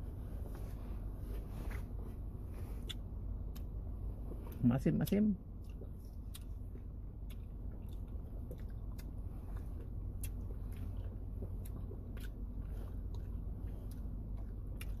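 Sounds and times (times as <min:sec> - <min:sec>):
steady low hum: 0:00.0 - 0:15.0
wet chewing: 0:04.4 - 0:15.0
mouth clicks and smacks: 0:04.5 - 0:15.0.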